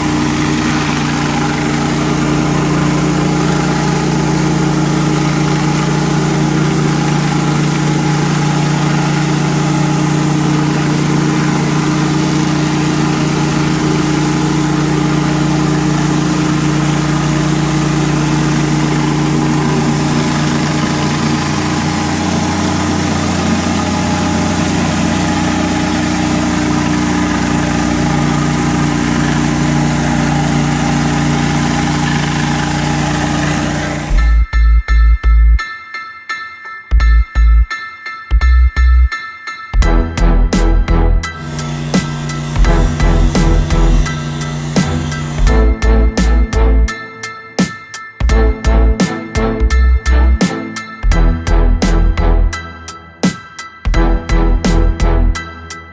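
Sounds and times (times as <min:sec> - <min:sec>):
water spraying hiss: 0:00.0 - 0:34.1, 0:41.4 - 0:45.5
pressure washer engine running: 0:00.0 - 0:34.3, 0:39.8 - 0:46.9, 0:54.0 - 0:55.4.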